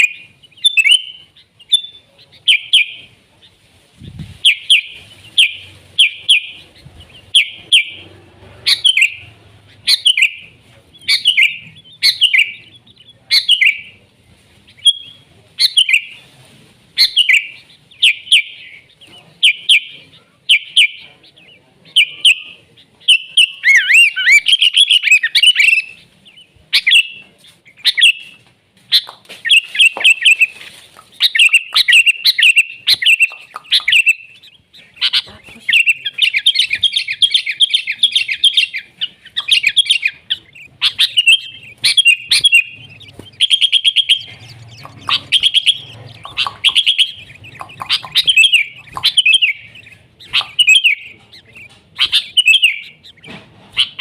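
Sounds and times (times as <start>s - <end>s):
bird singing bubbly phrases: 31.2s - 54.0s.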